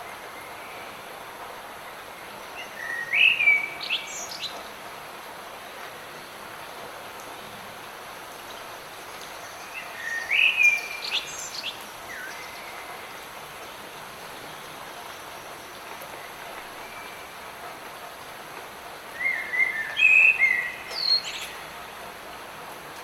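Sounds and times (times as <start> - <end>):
light rain hissing: 0.0 - 23.0
songbird whistling: 10.0 - 11.3.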